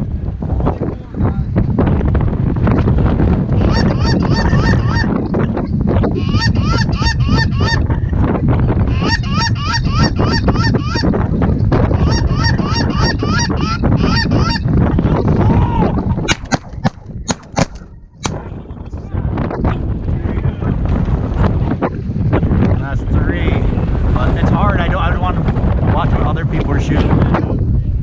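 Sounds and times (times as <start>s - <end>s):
wind buffeting microphone: 0.0s - 28.0s
geese honking: 3.6s - 5.2s, 8.9s - 11.2s, 12.0s - 14.7s
sharp cracks: 16.2s - 18.4s.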